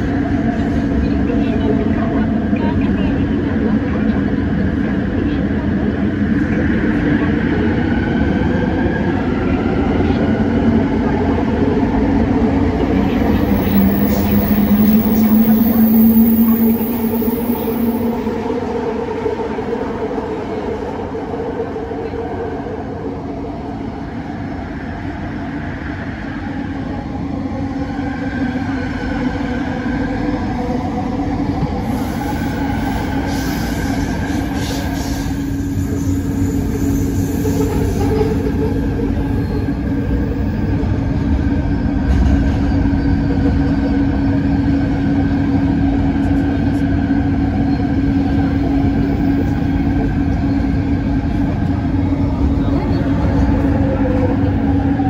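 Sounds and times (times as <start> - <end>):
train hum and rolling noise: 0.0 - 55.0.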